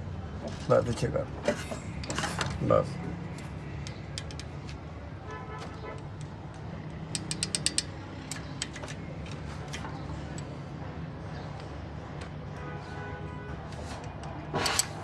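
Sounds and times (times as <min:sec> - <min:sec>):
sharp metallic clicks: 0:06.9 - 0:10.5.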